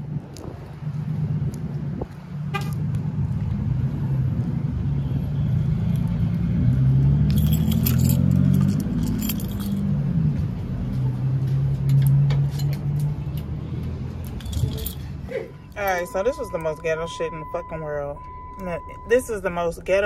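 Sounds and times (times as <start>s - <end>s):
keys jingling: 7.2s - 10.0s, 14.2s - 16.9s.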